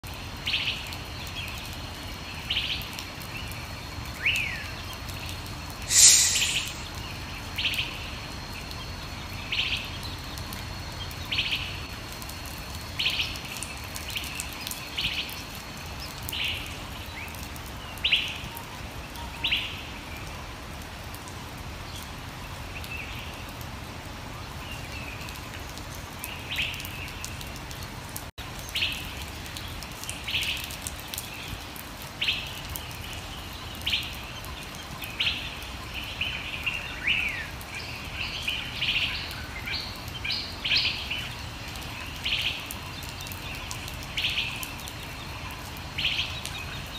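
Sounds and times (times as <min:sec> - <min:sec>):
bird chirps: 0:05.9 - 0:07.0.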